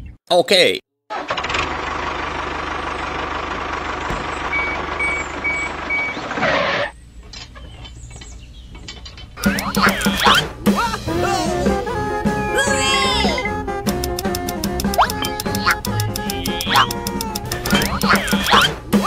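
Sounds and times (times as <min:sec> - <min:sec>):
vehicle engine rumbling: 0:01.3 - 0:19.0
short reversing beeps: 0:04.2 - 0:06.2, 0:15.0 - 0:17.0
voices: 0:08.9 - 0:18.8
music: 0:09.4 - 0:19.0.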